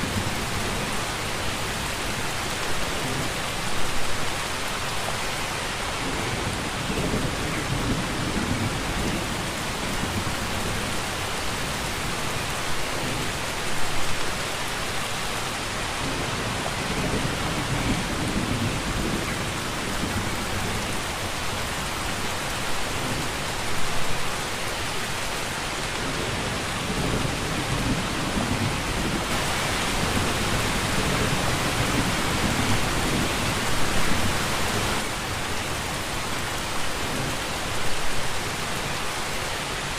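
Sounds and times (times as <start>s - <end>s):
dense rainfall: 0.0s - 39.9s.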